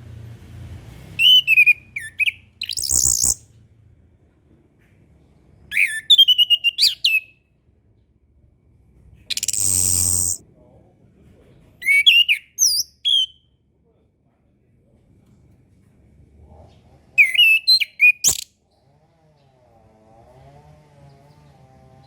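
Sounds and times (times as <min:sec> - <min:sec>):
thrush whistling song: 0:01.2 - 0:03.4, 0:05.7 - 0:07.3, 0:09.3 - 0:10.4, 0:11.8 - 0:13.4
harsh rasping bird call: 0:09.3 - 0:10.4.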